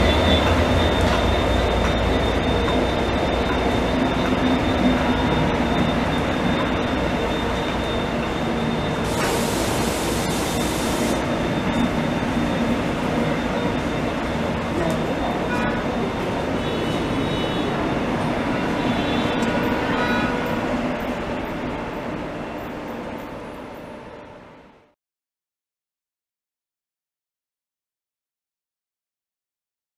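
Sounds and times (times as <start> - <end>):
high-pitched whine: 0.0 - 16.2
diesel locomotive engine drone: 0.0 - 25.0
train rolling past: 0.0 - 25.0
burst of hiss: 9.1 - 11.2.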